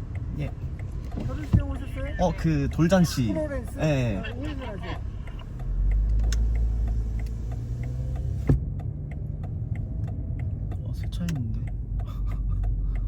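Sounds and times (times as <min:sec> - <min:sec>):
car engine drone: 0:00.0 - 0:13.0
turn signal ticking: 0:00.0 - 0:13.0.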